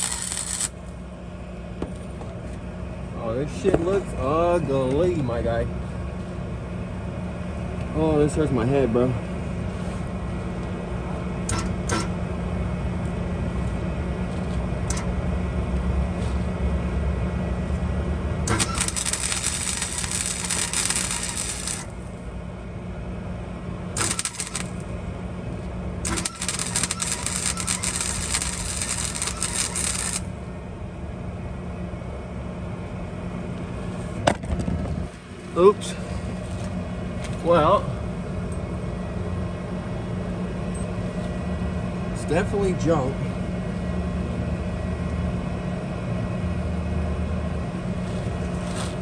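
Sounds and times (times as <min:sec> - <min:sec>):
welding arc crackling: 0:00.0 - 0:01.0, 0:18.5 - 0:22.2, 0:23.9 - 0:25.0, 0:26.0 - 0:30.4
low hum: 0:00.0 - 0:42.2.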